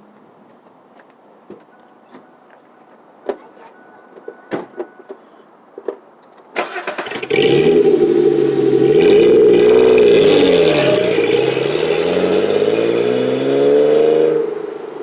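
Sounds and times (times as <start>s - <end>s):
starter cranking: 6.6s - 12.0s
car engine running loud: 6.8s - 13.7s.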